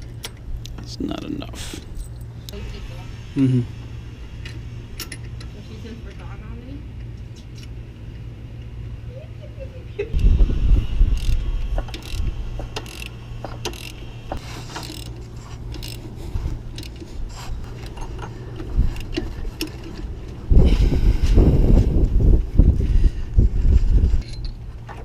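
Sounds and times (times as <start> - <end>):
ratchet wrench clicking: 11.1 - 14.0, 14.7 - 16.1.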